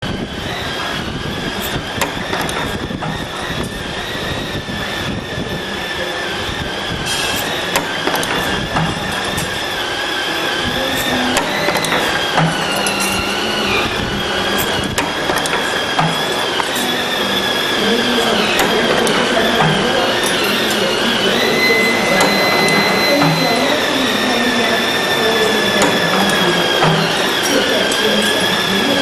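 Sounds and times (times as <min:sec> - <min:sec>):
machine motor whine: 0:00.0 - 0:29.0
mechanical rattle: 0:00.1 - 0:05.7, 0:06.4 - 0:29.0.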